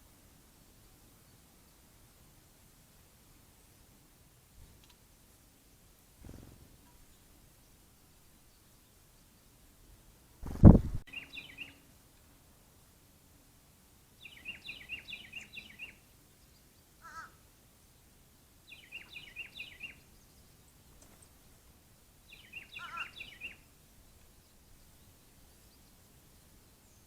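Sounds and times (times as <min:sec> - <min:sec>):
low bird call: 0:22.3 - 0:23.6.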